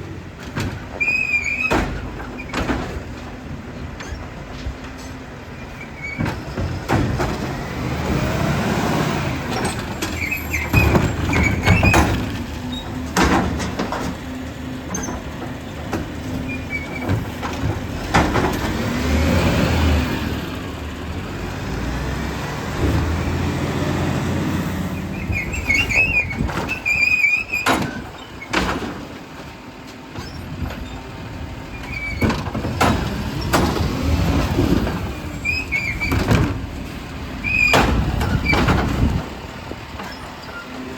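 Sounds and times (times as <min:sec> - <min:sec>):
diesel engine running: 0:00.0 - 0:40.9
sharp bangs and knocks: 0:06.2 - 0:20.6, 0:21.6 - 0:40.3
short high squeals: 0:24.9 - 0:28.5.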